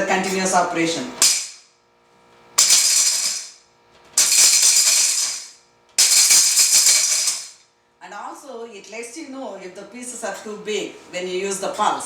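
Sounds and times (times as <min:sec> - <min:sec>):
hard pieces rattling in steel jar: 0:02.6 - 0:03.6, 0:04.2 - 0:07.6.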